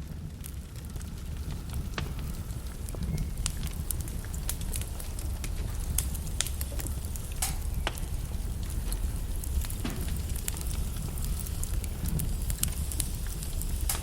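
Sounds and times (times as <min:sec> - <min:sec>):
logs crackling in fireplace: 0:00.0 - 0:14.0
low rumble of flames: 0:00.0 - 0:14.0.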